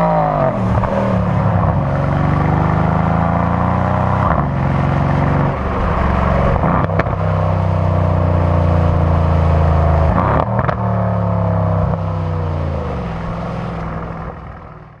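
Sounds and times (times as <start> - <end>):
car engine running hard: 0.0 - 15.0.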